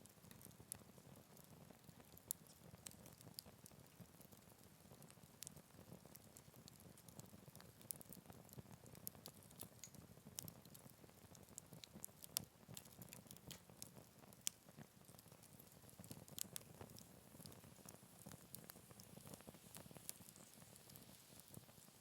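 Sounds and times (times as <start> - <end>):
wood fire crackling and popping: 0.0 - 22.0
low rumble of flame: 0.1 - 22.0.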